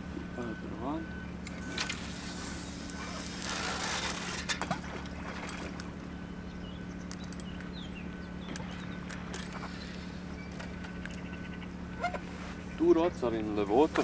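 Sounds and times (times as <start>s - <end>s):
low motor drone: 0.0s - 14.0s
line hissing off reel: 1.5s - 4.6s.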